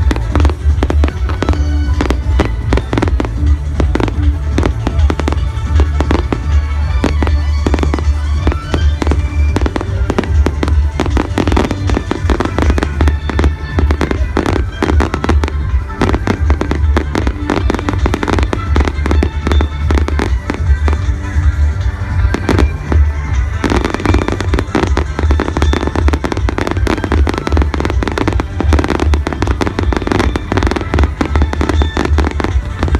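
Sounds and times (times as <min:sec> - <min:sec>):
fireworks bangs and crackling: 0:00.0 - 0:32.9
loud music: 0:00.0 - 0:32.9.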